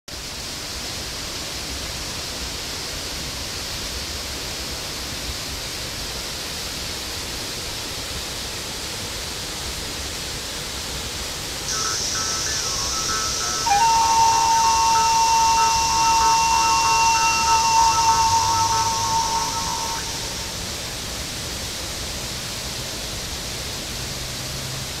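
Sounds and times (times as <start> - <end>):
chime-like tune: 11.7 - 20.7
water rushing: 11.7 - 21.1.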